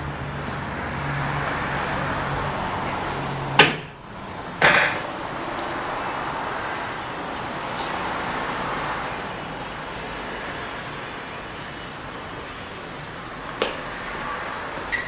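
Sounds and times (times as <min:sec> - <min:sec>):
vehicle engine hum: 0:00.0 - 0:15.0
sharp knock: 0:03.6 - 0:04.0.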